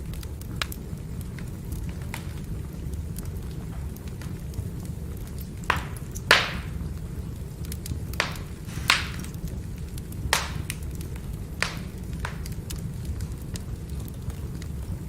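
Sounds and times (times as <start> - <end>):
firewood crackling: 0.0 - 15.0
sharp pops: 8.2 - 9.5, 10.3 - 10.8.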